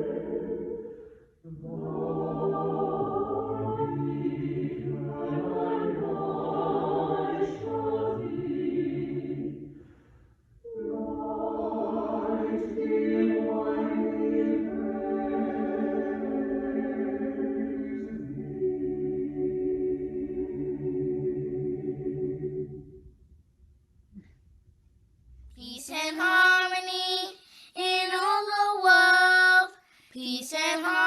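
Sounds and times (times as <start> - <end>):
choir singing sustained chords: 0.0 - 23.2.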